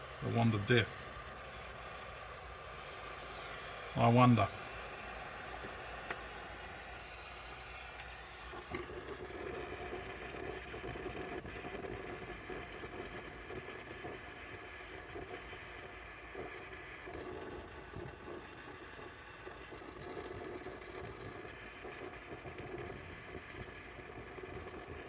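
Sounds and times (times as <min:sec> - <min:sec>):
gas flame fluttering rush: 0:00.0 - 0:25.0
torch igniter clicks: 0:05.4 - 0:15.6.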